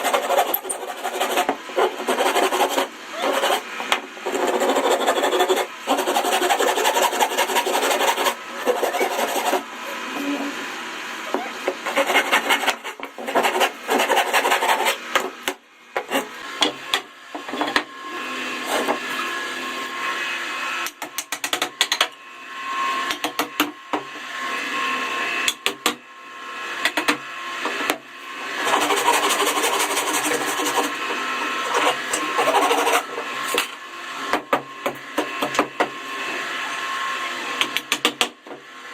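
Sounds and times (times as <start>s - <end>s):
scraping wood with hand tool: 0.0s - 10.6s, 11.3s - 15.4s, 16.0s - 16.7s, 18.6s - 19.1s, 28.6s - 33.6s.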